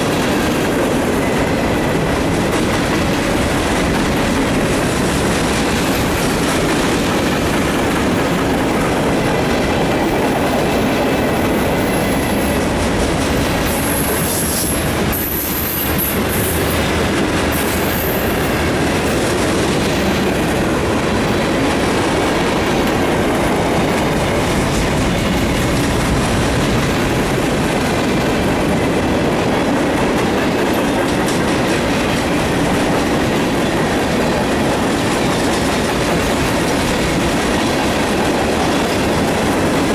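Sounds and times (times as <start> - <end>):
clickety-clack over rail joints: 0.0 - 39.9
train wheels rumbling on rail: 0.0 - 39.9
high wheel squeals: 13.7 - 16.8.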